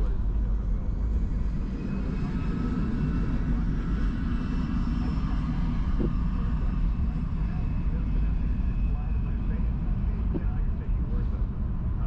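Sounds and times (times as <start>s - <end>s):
faint steady whine: 0.0s - 12.0s.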